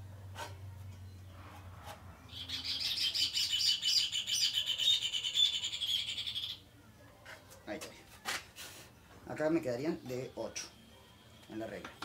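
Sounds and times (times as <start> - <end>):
small birds twittering: 2.2 - 6.7.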